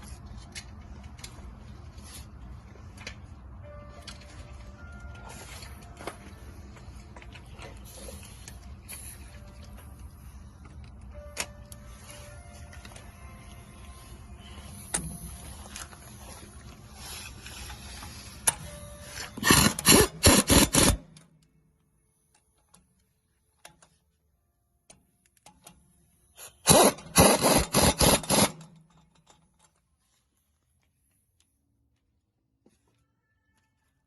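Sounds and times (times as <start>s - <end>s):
impact wrench rattling: 26.7s - 29.3s.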